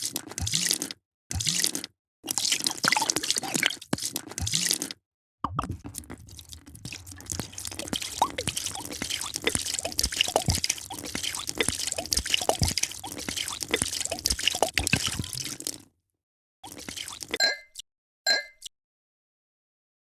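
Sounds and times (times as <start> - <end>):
drink pouring into a glass: 5.5 - 15.8, 16.6 - 17.4.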